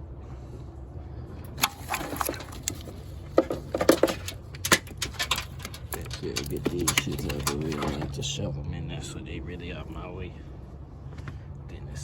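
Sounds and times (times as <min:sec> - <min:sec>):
steady low hum: 0:00.0 - 0:12.0
clicks and knocks of parts handled: 0:01.5 - 0:08.2.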